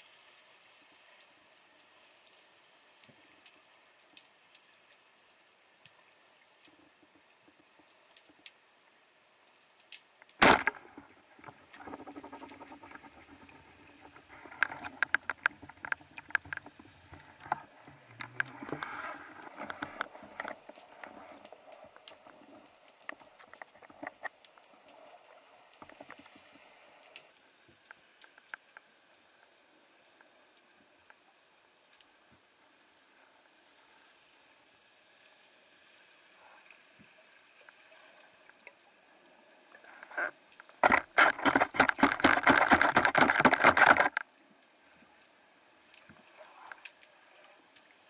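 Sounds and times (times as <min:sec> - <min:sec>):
underwater clicks: 0:09.9 - 0:27.3, 0:39.8 - 0:44.3
loud sharp crack: 0:10.4 - 0:10.8
rattling and clicking: 0:40.8 - 0:44.2.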